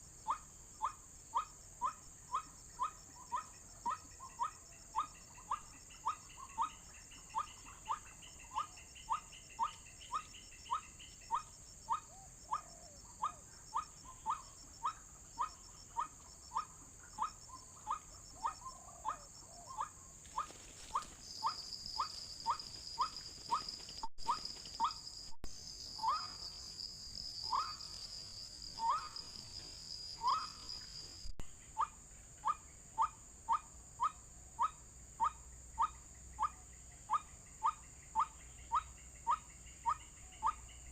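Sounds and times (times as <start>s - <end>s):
insect droning high: 19.0s - 34.1s
insects hissing: 19.4s - 34.2s
waterhen calling: 26.0s - 26.5s, 27.4s - 28.0s, 28.7s - 29.6s, 30.2s - 30.8s.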